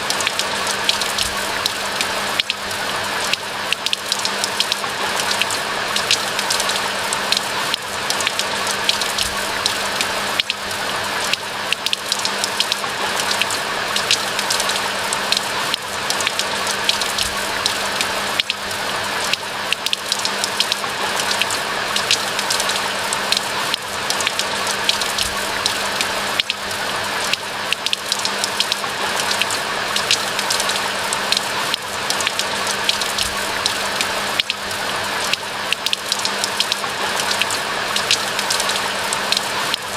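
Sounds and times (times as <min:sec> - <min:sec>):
crisp raindrop ticks: 0:00.0 - 0:39.9
rain falling: 0:00.0 - 0:39.9.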